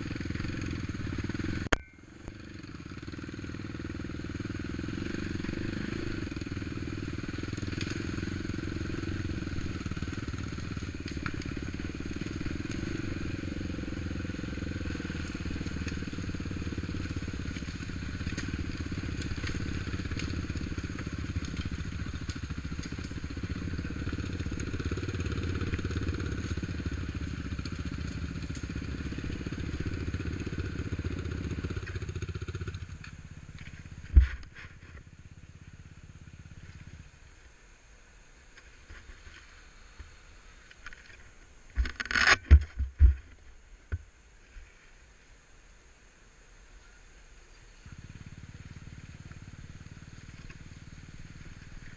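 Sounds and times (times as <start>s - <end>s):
atv engine running: 0.0s - 44.0s, 47.5s - 51.9s.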